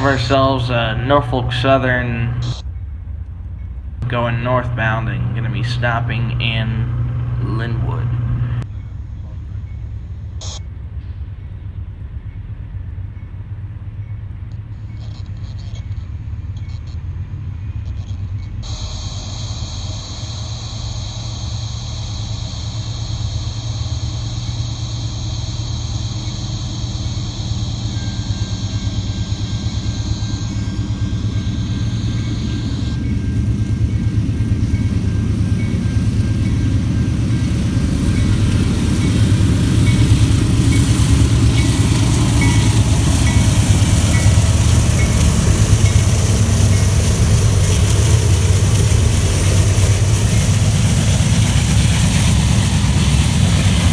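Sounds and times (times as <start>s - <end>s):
high steady whining tones: 0.0s - 2.6s, 4.0s - 8.7s, 18.2s - 53.9s
diesel locomotives rumbling: 0.0s - 53.9s.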